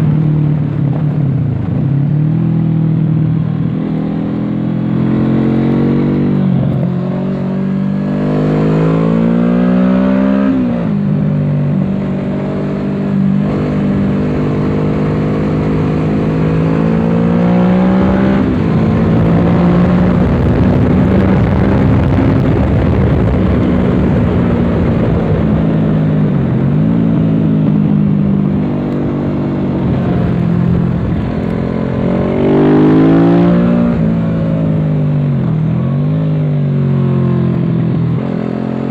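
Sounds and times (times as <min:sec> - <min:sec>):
motorcycle engine revving: 0:00.0 - 0:38.9
wind rushing noise: 0:10.3 - 0:35.4.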